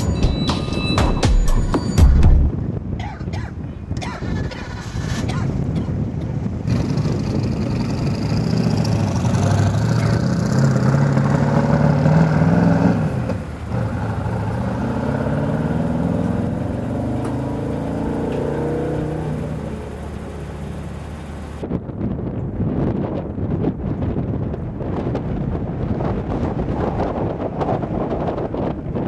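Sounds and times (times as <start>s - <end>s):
car engine accelerating: 6.4s - 21.7s.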